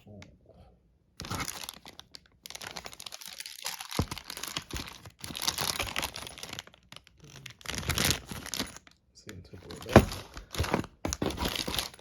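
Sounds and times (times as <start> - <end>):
packaging torn and crinkled: 1.2 - 8.9.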